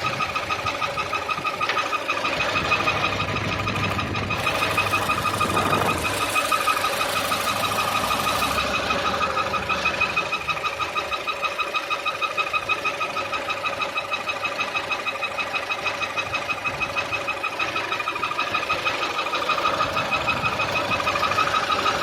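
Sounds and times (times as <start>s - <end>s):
car engine idling: 0.0s - 22.0s
pulsing high whistle: 4.3s - 14.4s.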